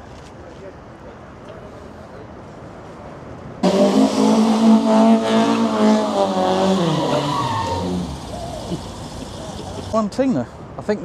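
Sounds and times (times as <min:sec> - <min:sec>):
car engine revving: 0:03.6 - 0:10.0.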